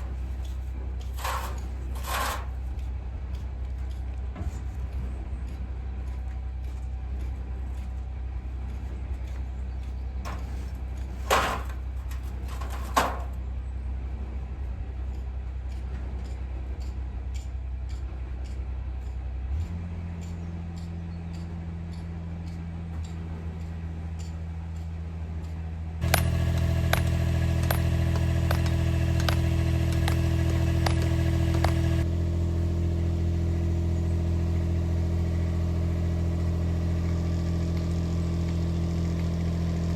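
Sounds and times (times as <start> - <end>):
engine running: 0.0 - 16.9, 25.9 - 39.9.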